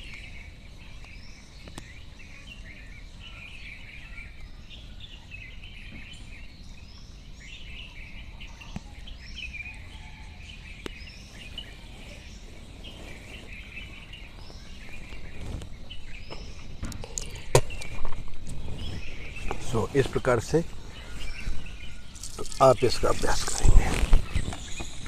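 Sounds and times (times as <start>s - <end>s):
birds chirping: 0.0s - 25.0s
rustling: 11.5s - 25.0s.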